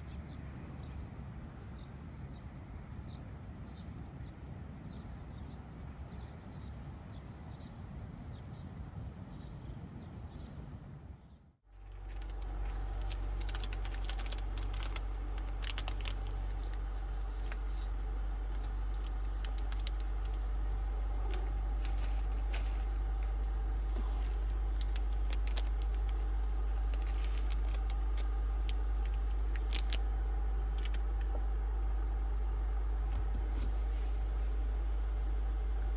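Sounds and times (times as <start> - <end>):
low hum: 11.7 - 35.9
steady low rumble: 11.7 - 35.9
objects clicking and rattling: 11.8 - 20.4, 21.2 - 30.0.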